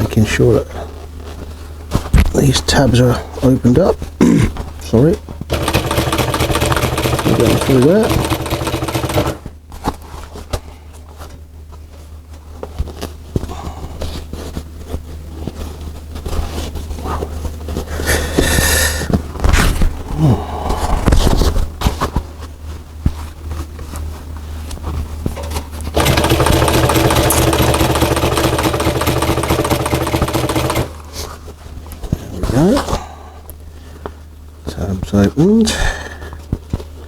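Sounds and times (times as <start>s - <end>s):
clicks and rustling of material: 3.9s - 17.9s, 21.0s - 34.2s
sewing machine stitching: 5.5s - 9.5s, 25.9s - 31.2s.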